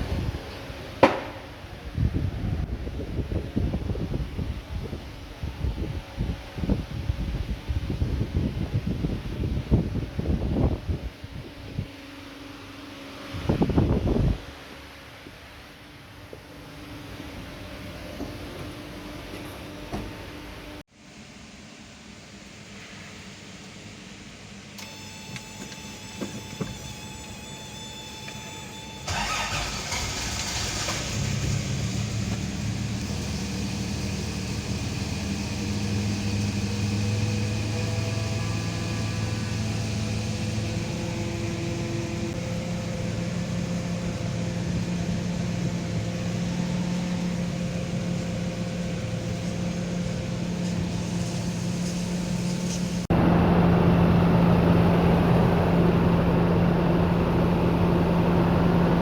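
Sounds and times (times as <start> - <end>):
car engine starting and idling: 24.8 - 59.0.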